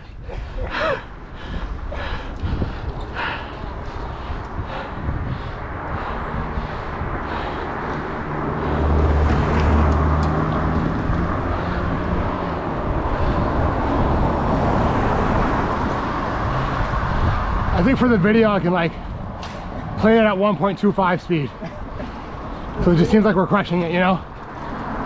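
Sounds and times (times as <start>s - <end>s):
wind and road noise: 0.0s - 25.0s
vehicle passing: 0.7s - 25.0s.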